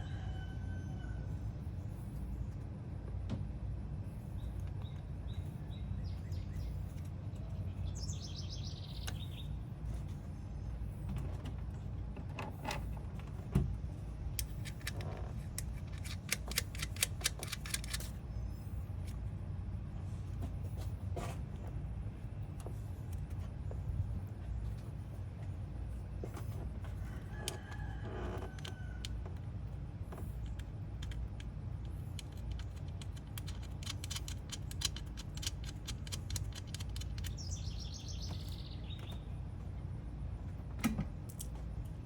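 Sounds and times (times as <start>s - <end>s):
birds chirping: 4.4s - 9.6s, 37.0s - 39.4s
quick run of clicks: 15.6s - 18.2s.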